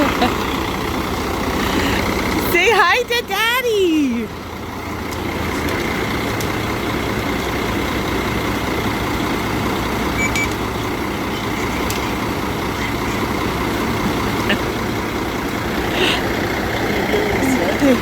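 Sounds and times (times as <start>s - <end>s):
diesel truck engine running: 0.0s - 18.0s.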